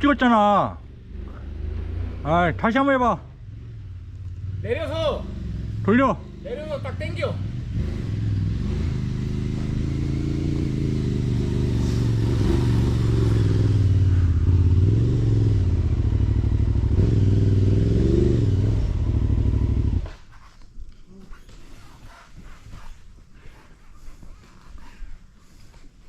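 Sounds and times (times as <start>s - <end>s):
motorcycle engine revving: 0.8s - 20.3s.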